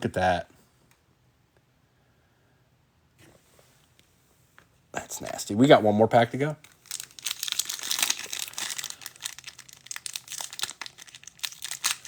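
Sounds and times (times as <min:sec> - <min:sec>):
plastic wrapper crinkling: 0:06.6 - 0:12.0.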